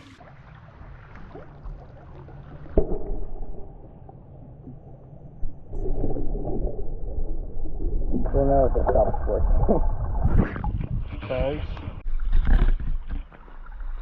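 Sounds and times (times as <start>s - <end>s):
muffled low rumble: 2.8s - 12.0s.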